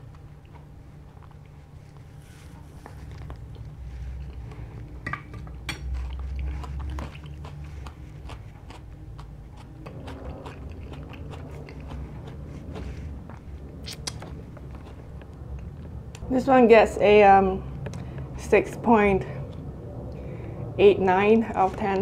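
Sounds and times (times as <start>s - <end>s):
close chewing with wet mouth clicks: 0.0s - 2.1s, 5.8s - 15.7s
low steady hum: 0.0s - 22.0s.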